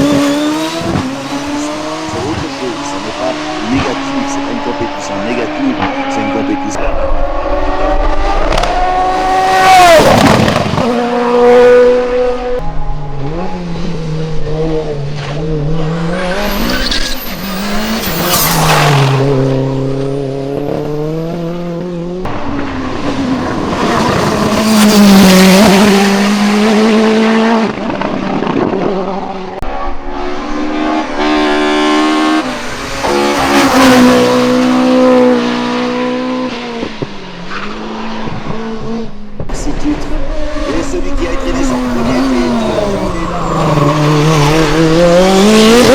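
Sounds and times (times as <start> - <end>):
racing car engines revving: 0.0 - 45.9.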